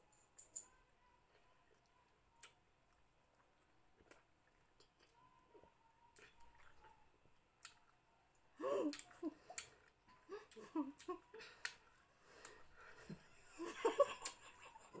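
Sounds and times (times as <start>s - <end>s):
people chewing with mouth clicks: 0.2s - 15.0s.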